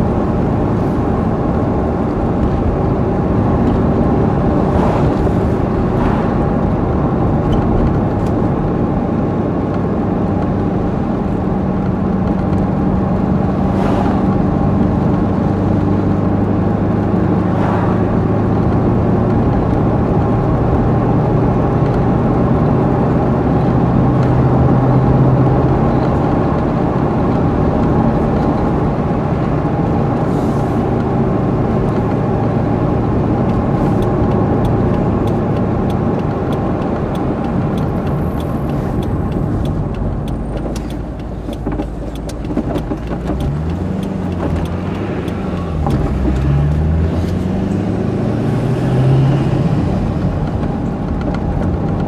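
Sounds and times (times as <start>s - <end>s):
car engine cruising: 0.0s - 52.0s
tyre and road noise: 0.0s - 52.0s.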